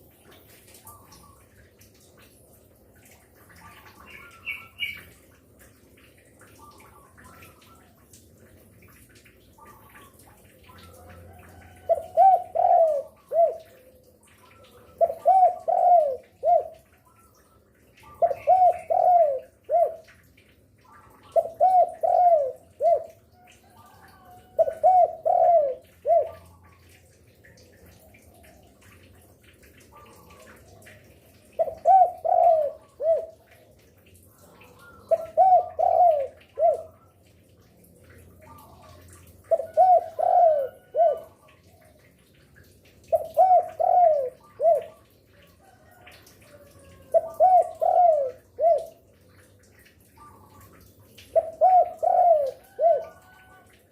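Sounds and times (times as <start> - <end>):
dove cooing: 9.8 - 17.0, 18.1 - 20.1, 21.0 - 26.8, 29.9 - 33.6, 34.6 - 37.1, 38.4 - 42.0, 43.1 - 49.6, 50.2 - 53.8.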